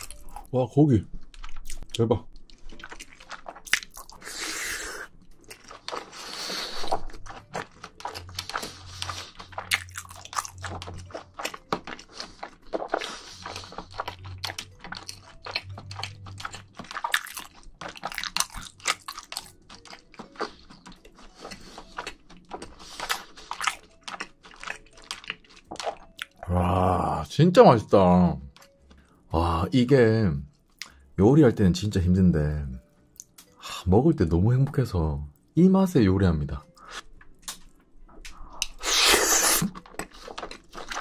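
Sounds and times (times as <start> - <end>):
chewing noodles wet mouth sounds: 1.2 - 27.2, 36.7 - 41.0.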